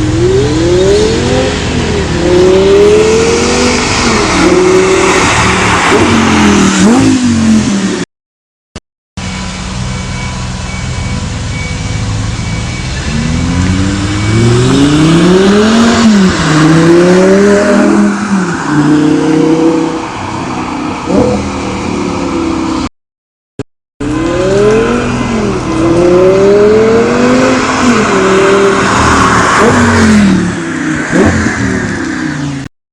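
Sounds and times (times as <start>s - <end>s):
sports car engine accelerating: 10.2s - 22.6s, 24.0s - 32.6s.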